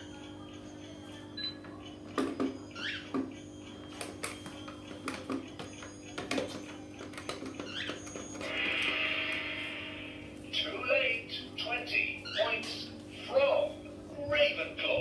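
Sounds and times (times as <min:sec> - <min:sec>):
steady low hum: 0:08.2 - 0:15.0.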